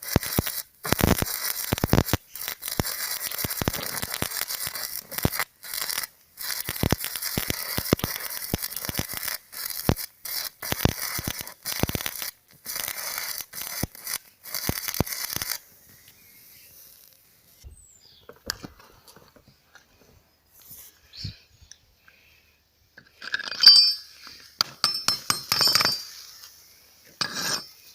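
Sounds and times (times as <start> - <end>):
welding arc crackling and hissing: 0.0 - 17.3, 25.3 - 27.9.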